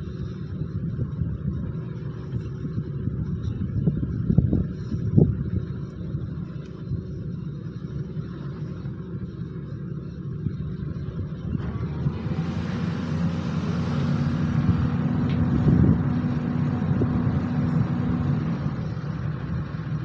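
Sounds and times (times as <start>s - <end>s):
steady hum: 0.0s - 20.0s
excavator diesel engine running: 5.3s - 20.0s.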